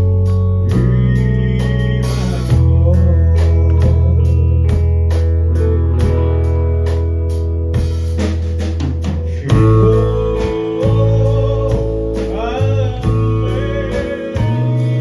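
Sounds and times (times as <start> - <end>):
live rock band playing: 0.0 - 15.0
sliding lead note: 1.1 - 8.4.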